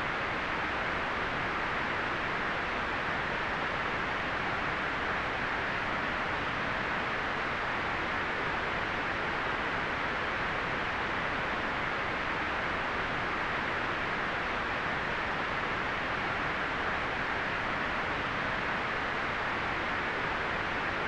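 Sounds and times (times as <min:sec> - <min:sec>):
steady white noise hiss: 0:00.0 - 0:21.0.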